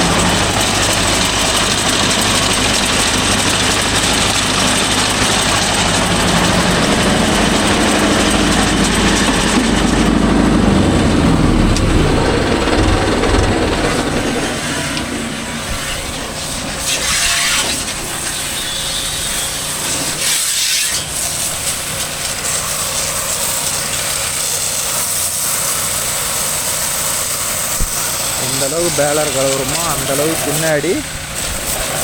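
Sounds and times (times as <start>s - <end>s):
engine hum: 0.0s - 32.0s
hissing water spray: 15.5s - 32.0s.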